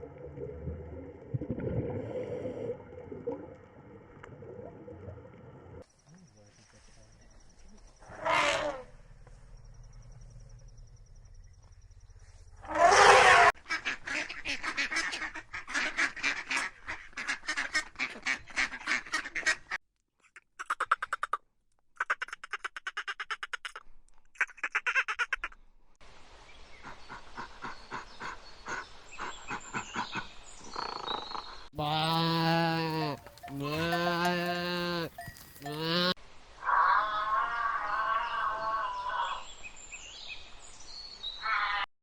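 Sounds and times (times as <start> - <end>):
ducks quacking: 13.1 - 19.8, 31.8 - 36.2.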